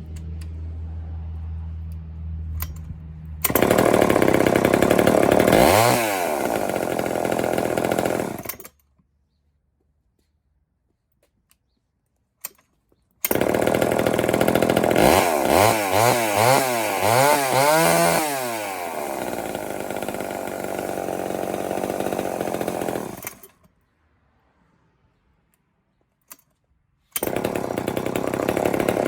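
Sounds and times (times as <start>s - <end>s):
chainsaw revving: 3.4s - 8.7s, 13.3s - 23.6s, 27.2s - 29.0s.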